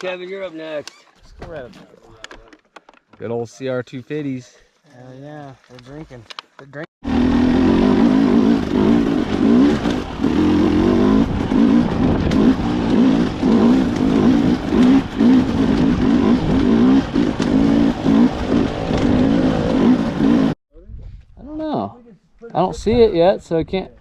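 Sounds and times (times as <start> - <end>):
dirt bike engine revving: 7.0 - 20.6.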